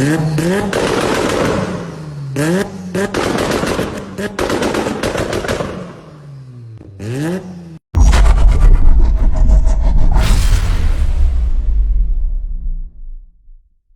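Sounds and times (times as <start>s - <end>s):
loud low rumble: 8.0s - 13.8s.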